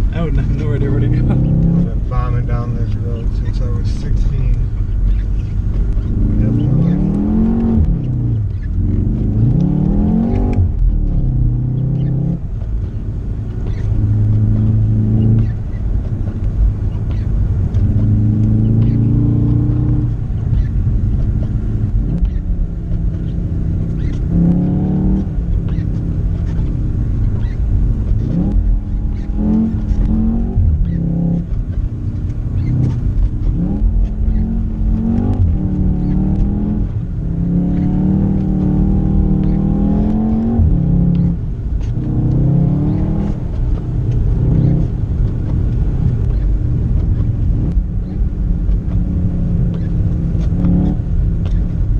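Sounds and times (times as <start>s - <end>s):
car engine accelerating: 0.0s - 51.9s
tyre and road noise: 0.0s - 51.9s.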